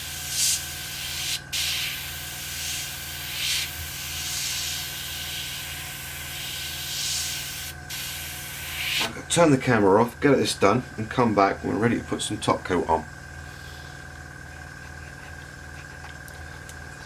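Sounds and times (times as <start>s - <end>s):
airbrush spraying hiss: 0.0s - 9.1s.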